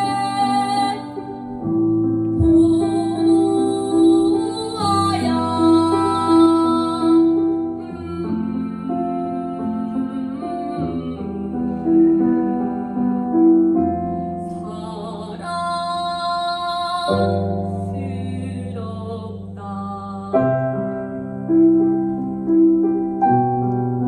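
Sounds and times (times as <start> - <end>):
piano accompaniment: 0.0 - 24.0
person singing: 2.2 - 21.1.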